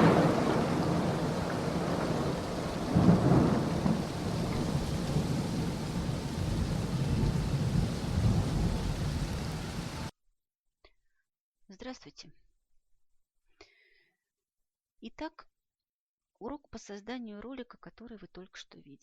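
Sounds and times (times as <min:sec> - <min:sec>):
rolling thunder: 0:00.0 - 0:10.1
steady rain: 0:00.0 - 0:10.1.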